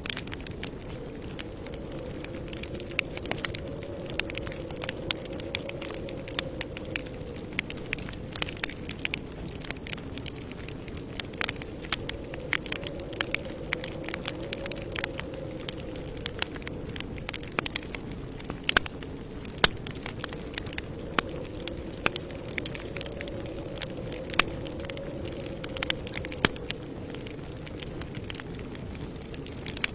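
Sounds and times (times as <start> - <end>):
campfire crackling: 0.0 - 29.9.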